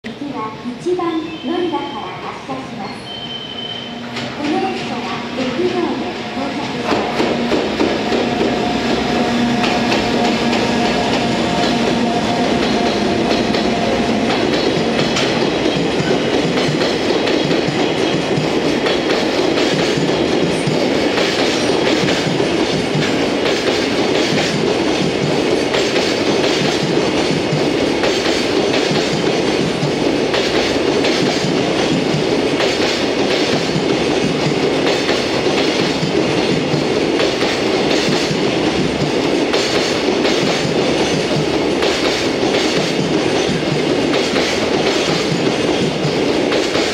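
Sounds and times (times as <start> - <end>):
train wheels clacking on rail joints: 4.0 - 46.9.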